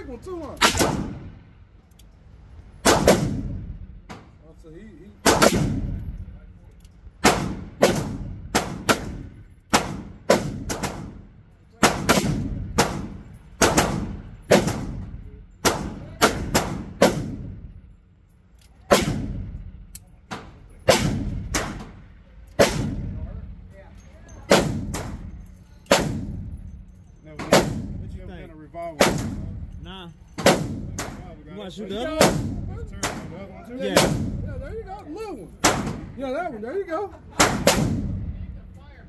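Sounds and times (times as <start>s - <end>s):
gunshots with echoing tail: 11.8s - 17.6s, 18.9s - 19.6s, 20.9s - 21.9s, 25.9s - 26.5s, 29.0s - 29.6s, 37.4s - 38.3s.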